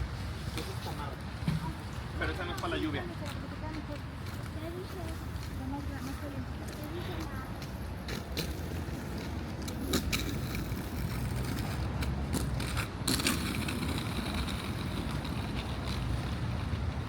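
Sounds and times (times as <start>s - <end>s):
sharp ticks and crunches: 7.6s - 16.4s.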